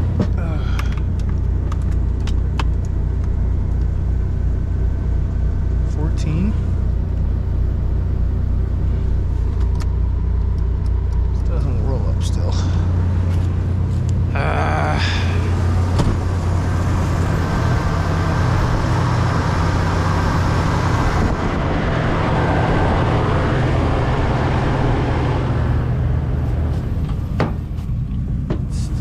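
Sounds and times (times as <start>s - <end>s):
car engine running: 0.0s - 29.0s.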